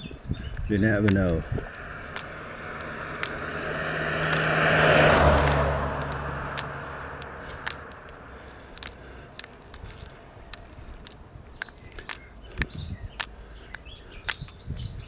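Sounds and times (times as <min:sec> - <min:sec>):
light footsteps: 0:00.1 - 0:14.8
car passing by: 0:00.9 - 0:09.8.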